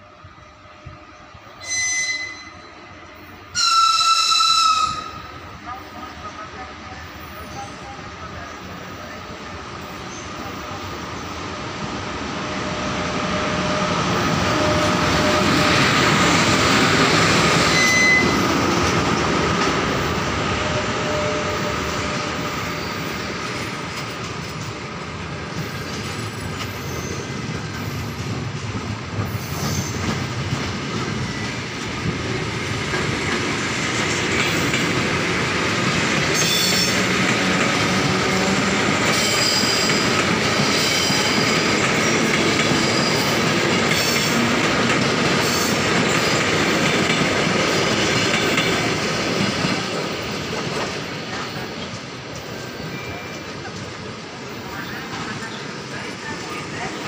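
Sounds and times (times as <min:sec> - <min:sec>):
train rail rumble: 0:00.0 - 0:57.0
wheels clacking over rail joints: 0:22.2 - 0:54.1
wheels squealing: 0:25.6 - 0:28.2.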